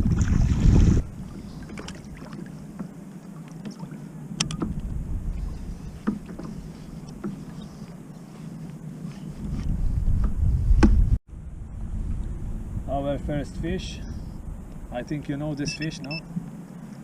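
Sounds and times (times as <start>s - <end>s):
wind rumble: 0.0s - 3.0s, 4.2s - 17.0s
water lapping against hull: 0.0s - 9.6s.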